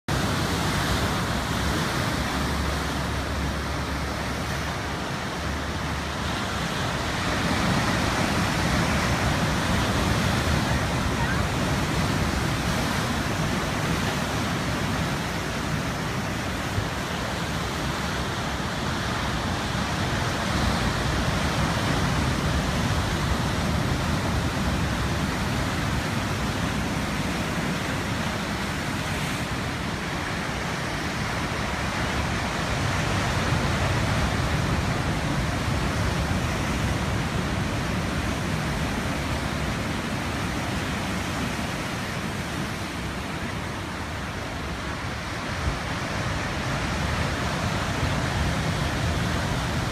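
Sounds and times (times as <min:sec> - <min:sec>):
heavy ocean surf breaking: 0:00.1 - 0:49.9.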